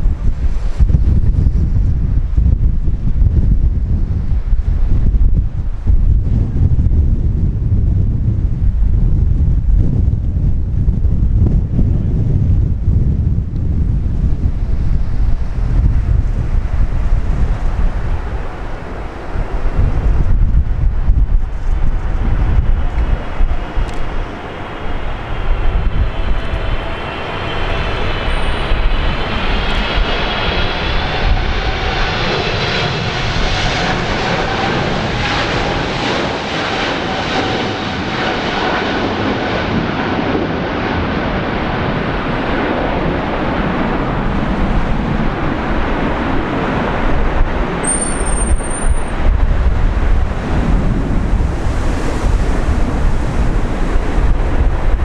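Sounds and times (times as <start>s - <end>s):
jet engines whining and rumbling: 0.0s - 55.0s
wind buffeting microphone: 0.0s - 55.0s
brief high whistle: 47.8s - 49.1s.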